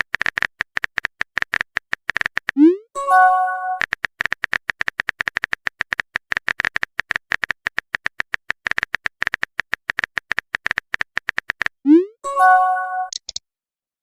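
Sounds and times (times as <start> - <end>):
phone keyboard typing taps: 0.0 - 2.6, 3.8 - 11.8, 13.1 - 13.4.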